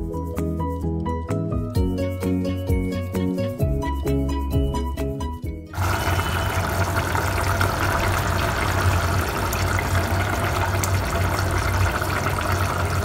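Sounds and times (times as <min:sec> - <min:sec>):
background music: 0:00.0 - 0:06.4
curry bubbling in a pot: 0:05.8 - 0:13.0
low hum: 0:05.8 - 0:13.0.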